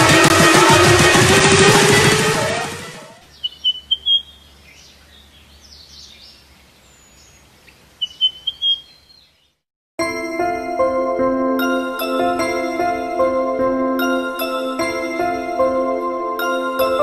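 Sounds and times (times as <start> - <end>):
bird chirping: 3.2 - 9.6.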